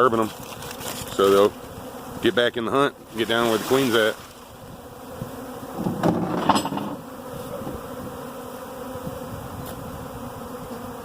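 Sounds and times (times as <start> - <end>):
honey bees buzzing: 0.0 - 11.0.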